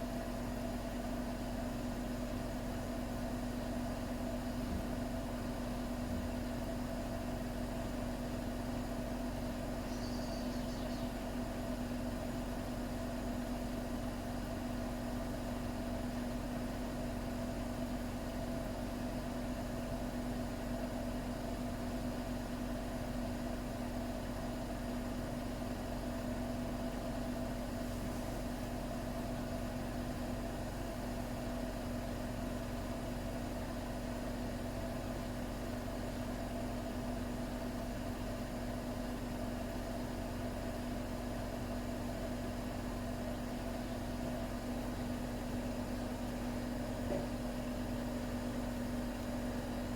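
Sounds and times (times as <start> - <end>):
washing machine humming: 42.4 - 49.9.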